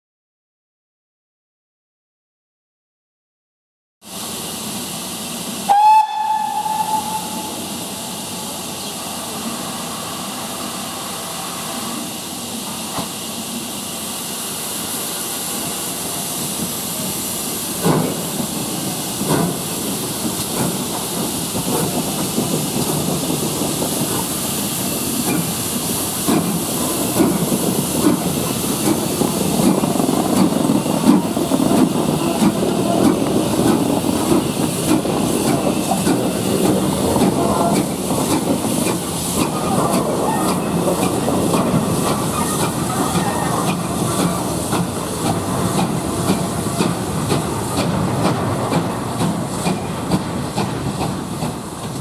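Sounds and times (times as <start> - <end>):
steam hissing: 4.1 - 52.0
steam locomotive whistle: 5.6 - 8.5, 42.3 - 43.8.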